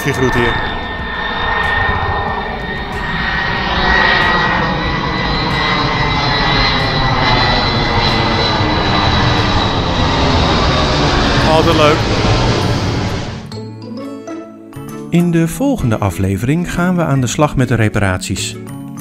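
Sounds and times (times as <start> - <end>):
airplane engine with high whine: 0.0 - 13.5.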